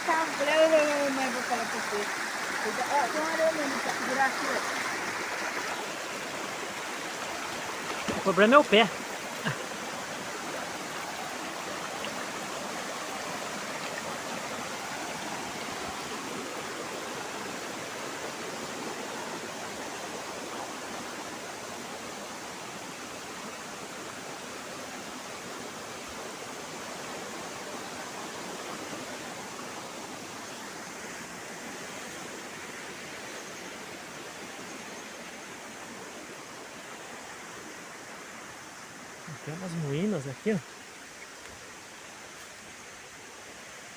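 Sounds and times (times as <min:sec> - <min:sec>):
waterfall and river rushing: 0:00.0 - 0:43.9.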